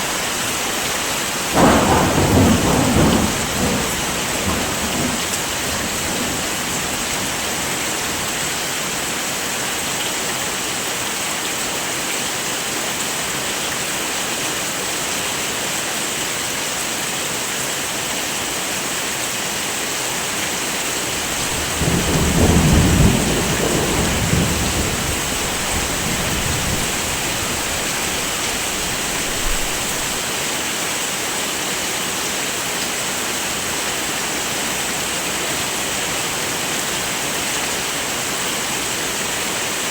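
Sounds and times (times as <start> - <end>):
heavy rain falling: 0.0 - 39.9
thunder rumbling: 1.5 - 8.6, 21.0 - 30.2.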